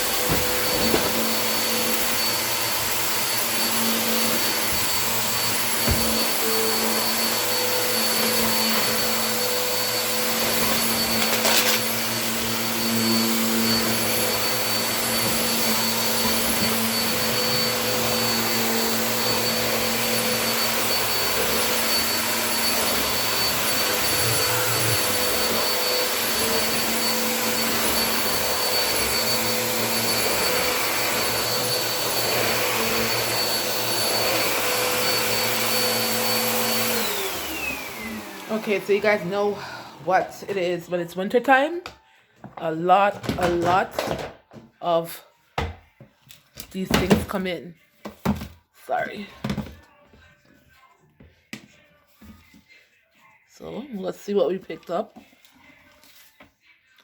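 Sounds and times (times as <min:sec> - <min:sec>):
vacuum cleaner running: 0:00.0 - 0:41.6.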